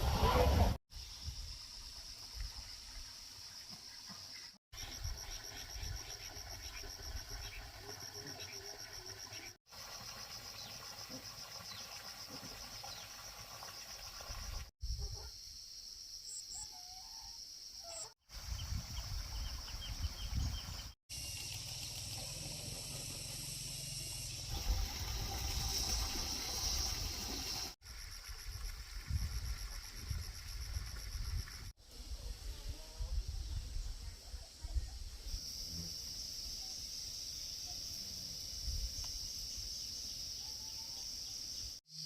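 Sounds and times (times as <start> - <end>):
insects trilling: 21.1 - 31.7.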